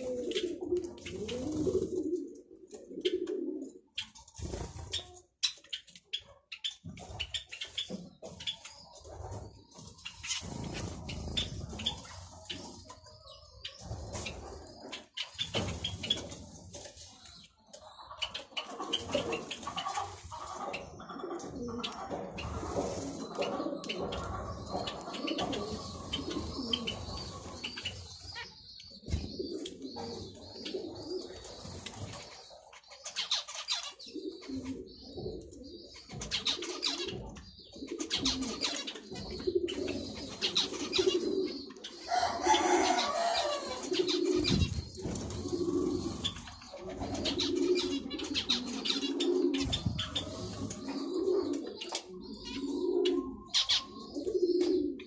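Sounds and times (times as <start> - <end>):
doves cooing: 0.0 - 5.2, 17.9 - 55.0
small cage birds chirping: 0.0 - 55.0.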